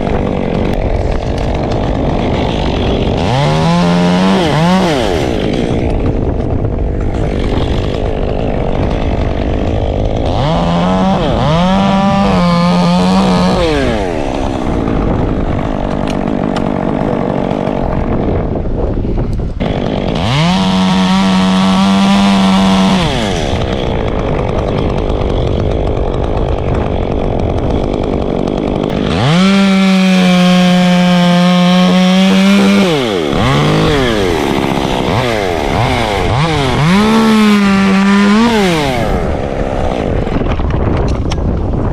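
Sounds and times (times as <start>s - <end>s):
chainsaw revving: 0.0s - 18.8s, 19.5s - 41.9s.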